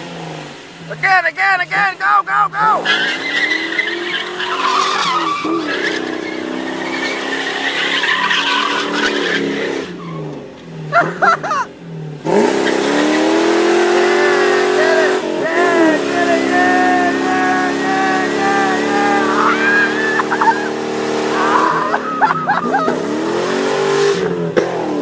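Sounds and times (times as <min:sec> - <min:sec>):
car engine revving: 0:00.0 - 0:25.0
tyre squeal: 0:02.8 - 0:10.4, 0:15.0 - 0:22.9.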